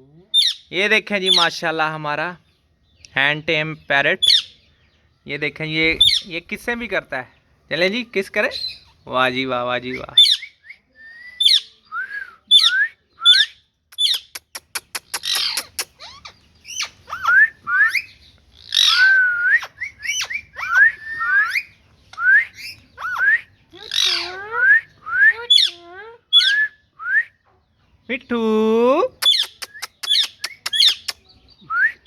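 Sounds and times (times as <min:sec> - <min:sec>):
parrot squawks and chirps: 0:00.3 - 0:01.5, 0:04.2 - 0:04.6, 0:09.9 - 0:11.8, 0:12.5 - 0:26.8, 0:29.2 - 0:31.3.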